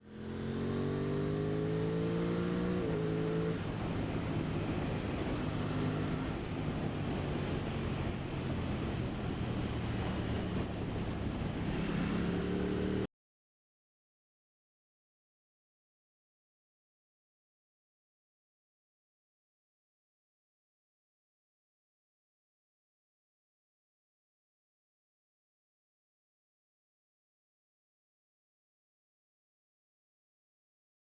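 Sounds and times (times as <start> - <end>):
motorcycle engine revving: 0.0 - 6.7, 11.2 - 13.1
wind rush: 2.2 - 13.0.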